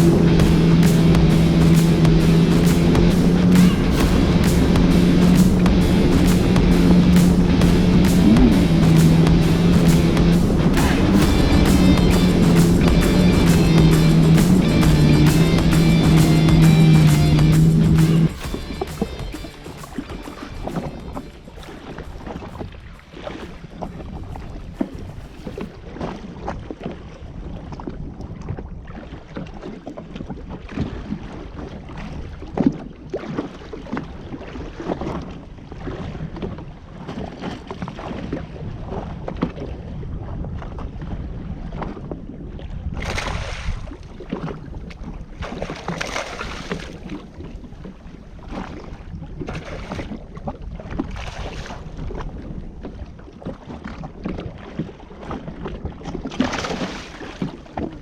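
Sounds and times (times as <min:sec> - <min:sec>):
wind buffeting microphone: 0:00.0 - 0:18.4, 0:19.9 - 0:29.0
water splashing around jetski: 0:00.0 - 0:58.0.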